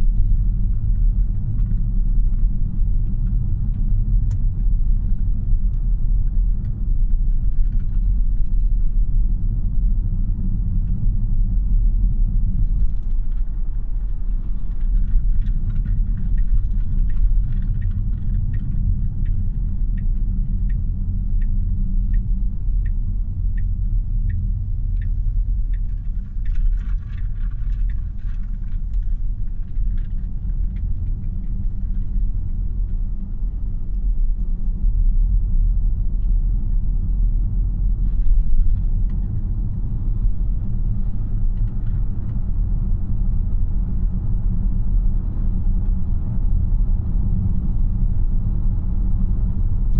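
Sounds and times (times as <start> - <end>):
road and tyre rumble in car: 0.0 - 49.9
turn signal ticking: 15.8 - 33.0.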